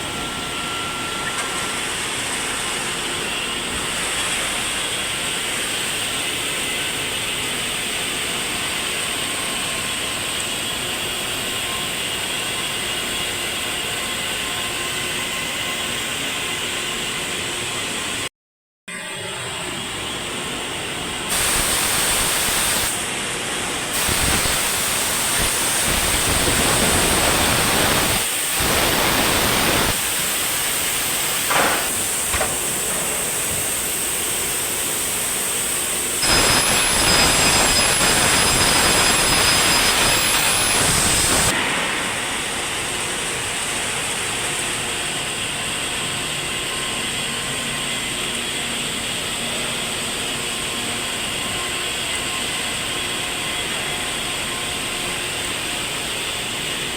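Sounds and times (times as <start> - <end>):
factory machinery rushing hiss: 20.6 - 46.6.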